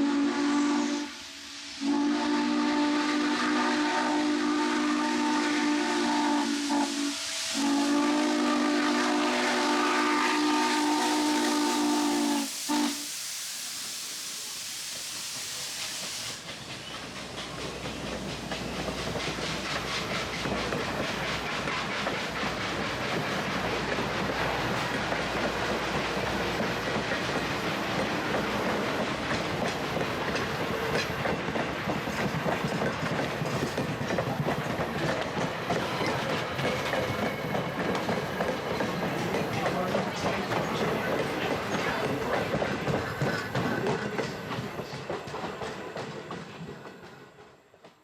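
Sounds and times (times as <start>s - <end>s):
steam locomotive whistle: 0.0s - 13.2s
steam hissing: 0.0s - 47.3s
train wheels clicking over rails: 14.7s - 48.0s.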